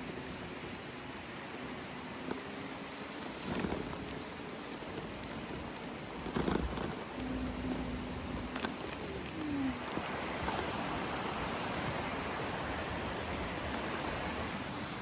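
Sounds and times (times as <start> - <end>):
creek rushing: 0.0 - 15.0.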